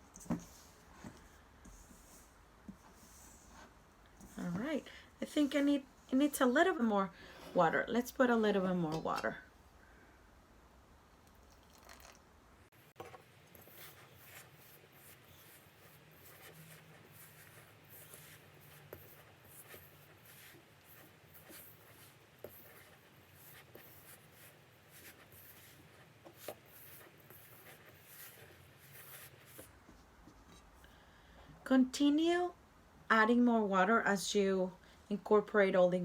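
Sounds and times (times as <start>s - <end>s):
faint steady hum: 0.0s - 36.0s
dough scraping and squishing: 12.8s - 30.7s.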